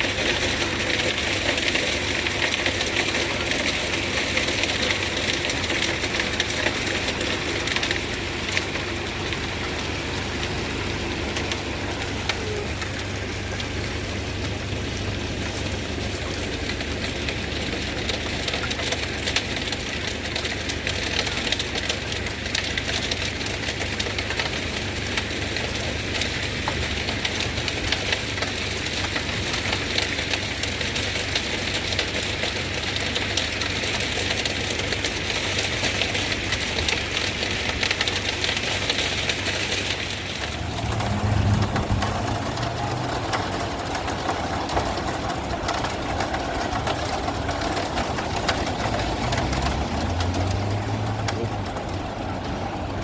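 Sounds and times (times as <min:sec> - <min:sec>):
truck engine droning: 0:00.0 - 0:19.4, 0:37.4 - 0:53.0.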